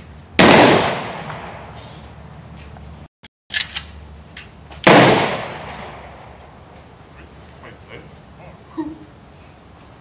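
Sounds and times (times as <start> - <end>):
rifle volley crack: 0.4 - 2.1, 4.7 - 6.6.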